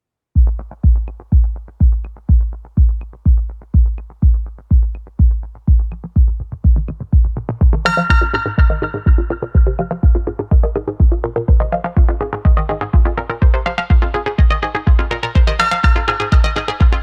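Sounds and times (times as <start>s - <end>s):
kick drum beat: 0.4s - 17.0s
bright synth chord: 7.9s - 10.4s.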